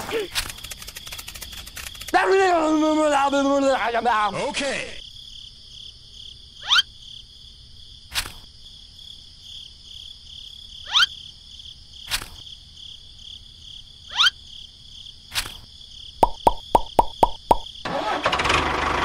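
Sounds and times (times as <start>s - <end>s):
insects chirring: 0.0s - 17.9s.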